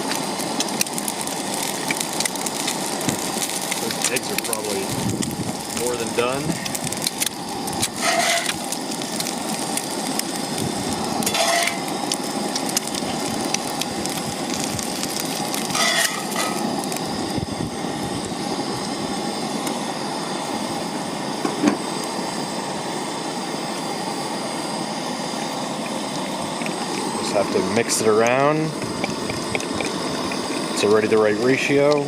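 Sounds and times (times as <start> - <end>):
eggs sizzling in a skillet: 0.0 - 32.0
short scrapes or clinks: 8.0 - 8.5, 11.3 - 11.8, 15.8 - 16.6.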